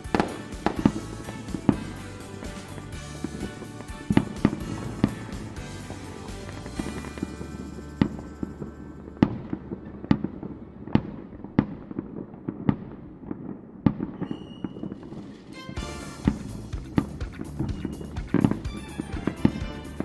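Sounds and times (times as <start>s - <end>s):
fireworks exploding: 0.0s - 17.0s.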